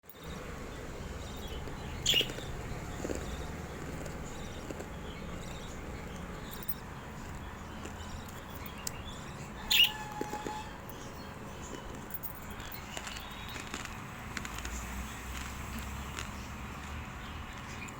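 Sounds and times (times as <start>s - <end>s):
low background noise: 0.0s - 17.9s
lovebird chirps: 1.1s - 3.7s, 4.3s - 11.9s.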